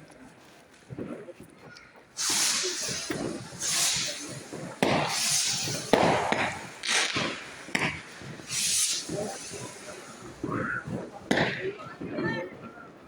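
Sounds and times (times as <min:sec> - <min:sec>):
fireworks hissing bursts: 0:02.0 - 0:13.0
fireworks sharp bangs: 0:02.1 - 0:13.0.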